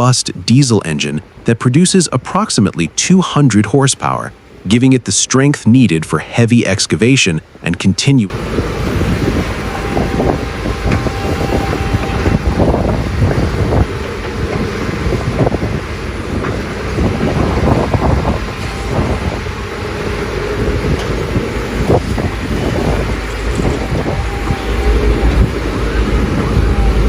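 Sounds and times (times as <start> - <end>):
excavator engine rumble: 7.5 - 27.0
knocks and clanks: 9.3 - 19.4.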